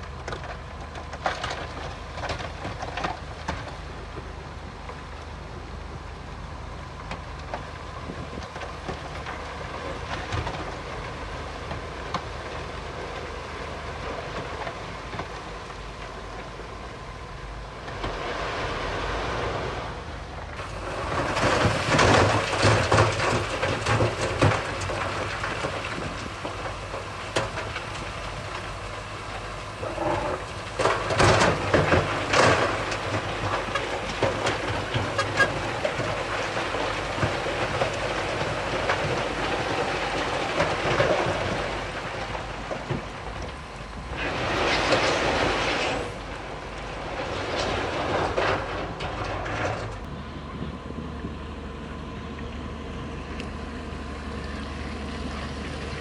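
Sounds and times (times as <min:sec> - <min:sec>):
diesel engine running: 0:00.0 - 0:56.0
loud rattling and clattering: 0:20.6 - 0:28.8, 0:44.2 - 0:50.1.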